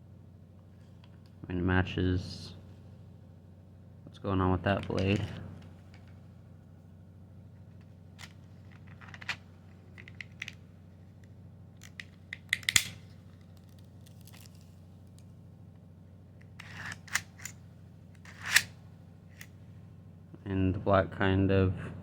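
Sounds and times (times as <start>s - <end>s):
steady low hum: 0.0s - 22.0s
plastic parts clicking and clattering: 7.8s - 10.6s.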